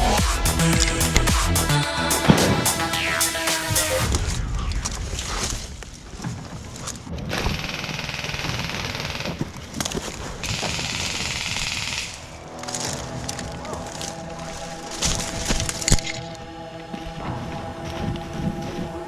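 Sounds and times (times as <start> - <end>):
electronic music: 0.0 - 4.8, 12.2 - 19.0.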